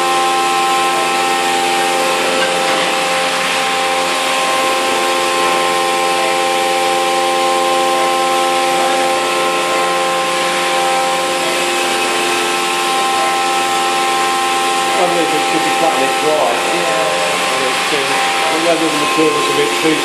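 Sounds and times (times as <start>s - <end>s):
milling machine cutting whine: 0.0s - 20.0s.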